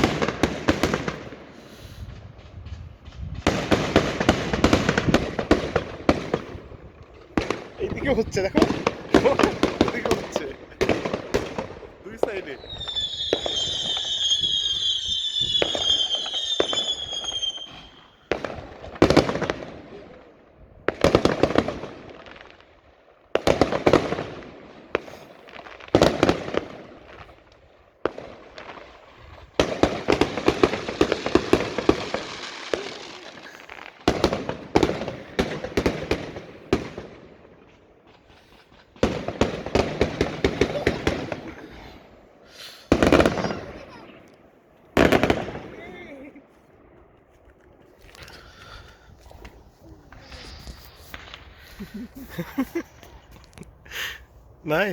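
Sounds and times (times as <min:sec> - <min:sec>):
whistling firework: 0:00.0 - 0:20.2, 0:28.1 - 0:44.3, 0:49.4 - 0:53.3
firework bangs and crackling: 0:00.0 - 0:47.2, 0:47.8 - 0:54.9.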